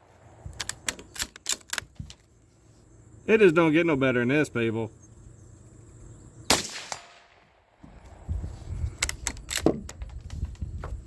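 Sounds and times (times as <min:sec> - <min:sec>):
gunshot: 0:06.5 - 0:07.4
sharp clicks and knocks: 0:09.0 - 0:11.0.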